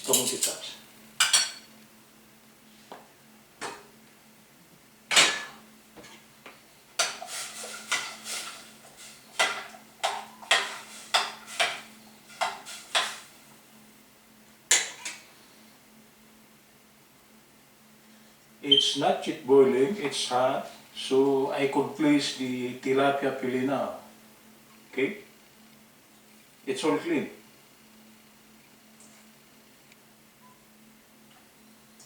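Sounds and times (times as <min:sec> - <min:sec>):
metal utensils clinking: 0:00.0 - 0:01.6.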